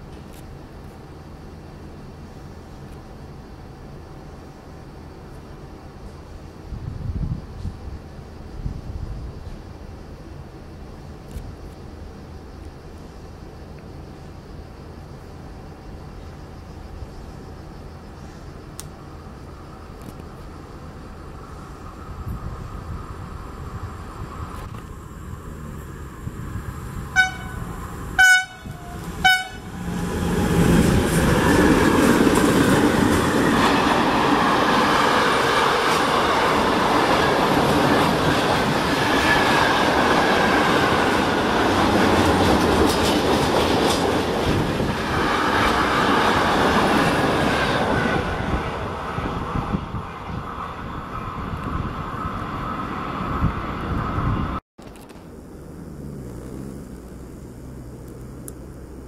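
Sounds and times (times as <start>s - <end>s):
freight train wheels rumbling on rails: 18.0s - 56.6s
locomotive horn blasts: 27.1s - 29.8s.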